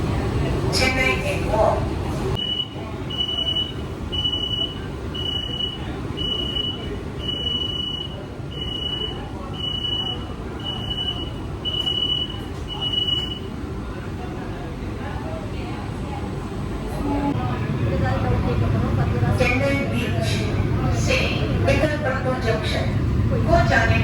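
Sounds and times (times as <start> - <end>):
low train rumble: 0.0 - 24.0
electronic warning beeps: 2.4 - 13.5.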